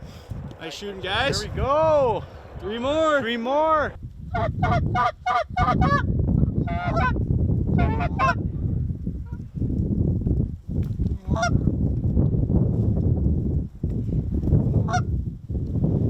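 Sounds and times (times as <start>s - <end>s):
wind noise rumble: 0.0s - 16.0s
geese honking: 3.7s - 6.0s.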